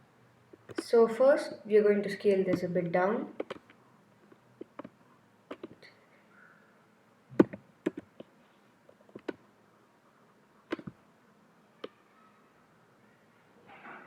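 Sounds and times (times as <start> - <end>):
keyboard and mouse clicks: 0.5 - 0.9, 3.4 - 5.9, 7.3 - 8.3, 8.9 - 9.4, 10.7 - 11.0.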